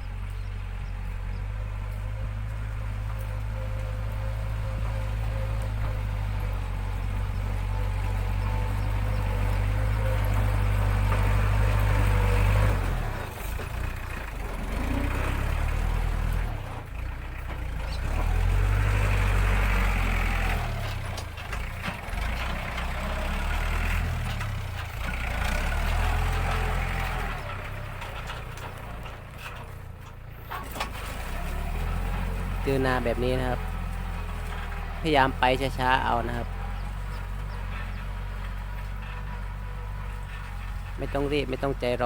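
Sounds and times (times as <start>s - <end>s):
tractor diesel engine droning: 0.0s - 42.0s
knocks and rattles: 8.3s - 32.5s, 36.4s - 41.2s.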